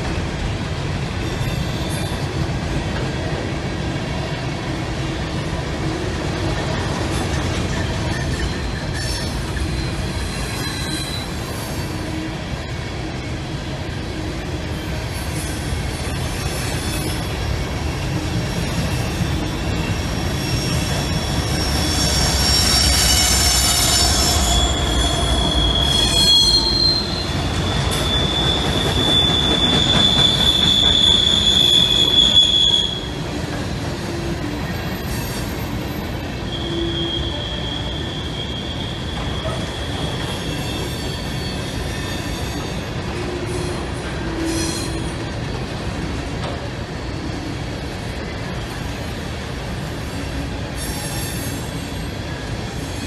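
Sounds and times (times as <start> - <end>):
diesel locomotives passing: 0.0 - 53.0
train wheels rumbling on rail: 0.0 - 53.0
high wheel squeal: 7.8 - 12.4, 16.1 - 45.2.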